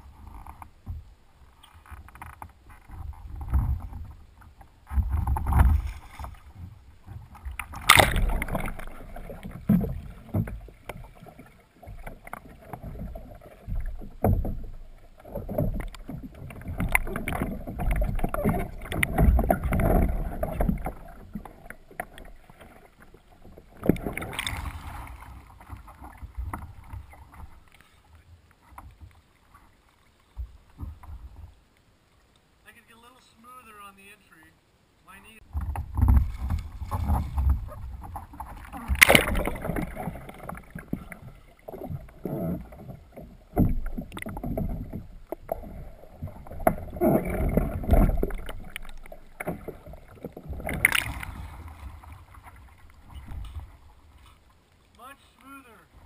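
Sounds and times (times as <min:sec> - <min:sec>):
water splashing around kayak hull: 0:00.0 - 0:56.0.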